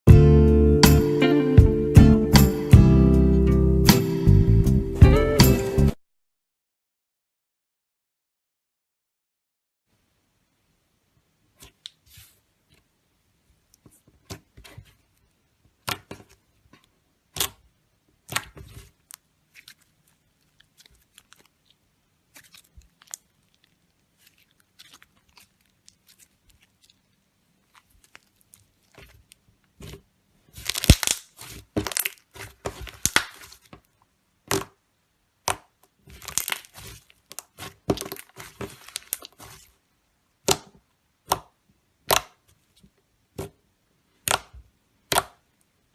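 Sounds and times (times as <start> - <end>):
slime crackling: 13.7 - 34.8, 35.4 - 39.8, 44.1 - 45.6.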